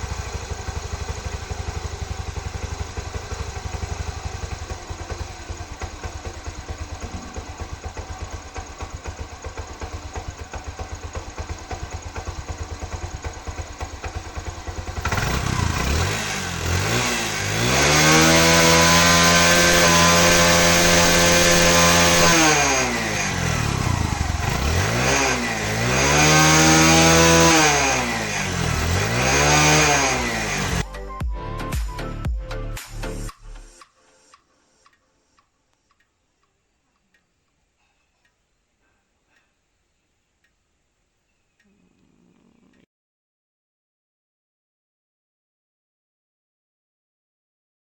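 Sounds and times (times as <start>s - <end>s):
motorcycle engine idling and revving: 0.0s - 31.4s.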